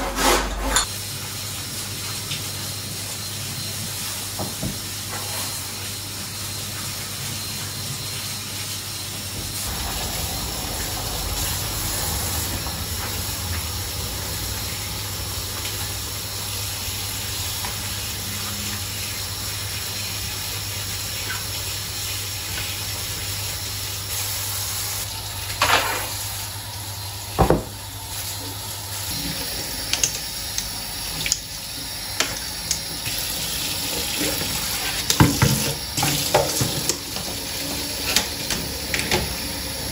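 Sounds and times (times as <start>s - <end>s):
utensils and dishes clattering: 0.0s - 0.9s
tap water running: 0.2s - 39.9s
low hum: 9.6s - 17.5s.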